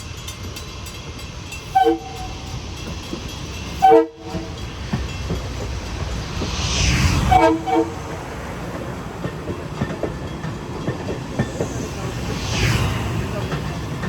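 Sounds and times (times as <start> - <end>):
train wheels clicking on rail joints: 0.0 - 14.0
train horn: 1.7 - 2.5, 3.8 - 4.6, 7.3 - 8.2.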